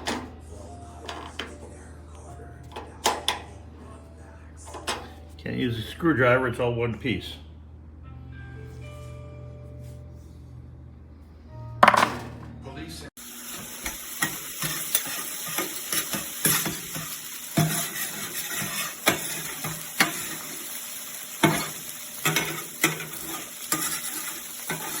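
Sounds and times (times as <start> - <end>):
food sizzling on a griddle: 13.2 - 25.0
metal spatula scraping: 14.1 - 20.8, 21.4 - 25.0.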